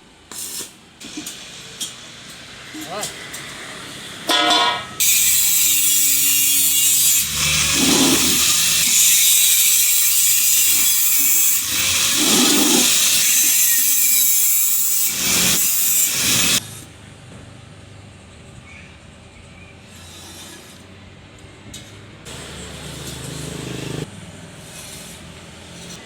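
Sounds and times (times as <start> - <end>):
power tool grinding metal: 5.0 - 16.6, 22.3 - 24.1.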